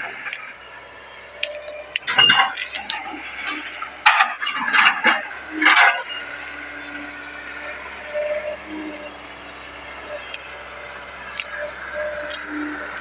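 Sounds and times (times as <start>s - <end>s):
excavator engine running: 0.0s - 13.0s
scraping and clinking: 1.4s - 6.2s.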